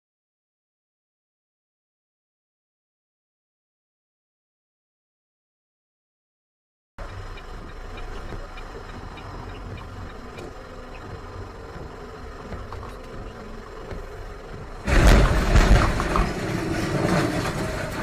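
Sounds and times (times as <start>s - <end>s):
faint ticks: 7.0s - 14.8s
vehicle engine and road noise: 7.0s - 18.0s.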